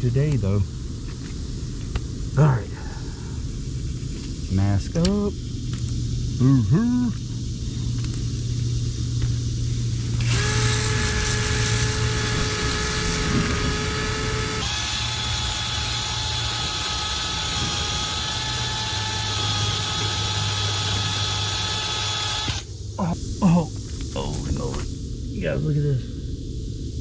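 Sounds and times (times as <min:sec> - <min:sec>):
low hum: 0:00.0 - 0:27.0
power drill whining: 0:10.0 - 0:23.2.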